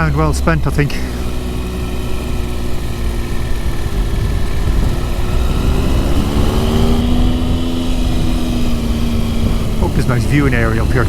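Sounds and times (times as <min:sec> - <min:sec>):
motorcycle engine running: 0:00.0 - 0:11.0
wind rush: 0:02.5 - 0:11.0.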